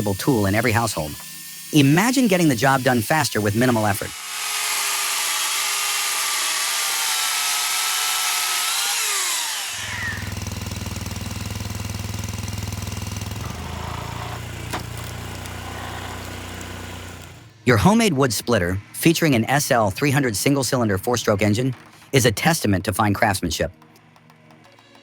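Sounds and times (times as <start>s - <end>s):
chainsaw running at high revs: 0.0s - 17.5s.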